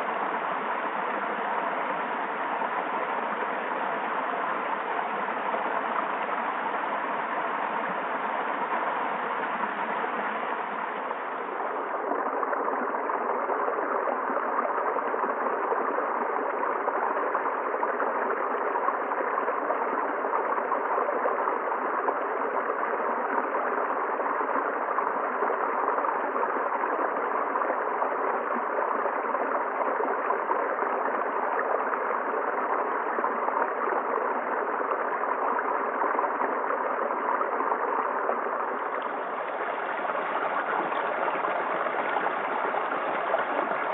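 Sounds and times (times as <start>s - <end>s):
stream water rushing: 0.0s - 19.5s, 34.4s - 43.9s.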